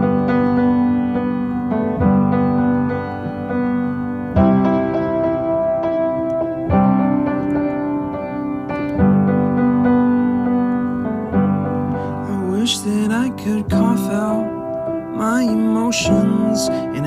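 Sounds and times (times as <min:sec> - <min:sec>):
piano playing slow chords: 0:00.0 - 0:17.0.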